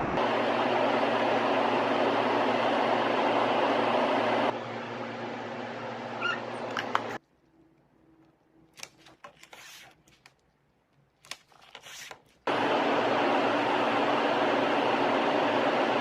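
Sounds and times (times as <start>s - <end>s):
handling clicks and rubbing: 6.6s - 12.4s.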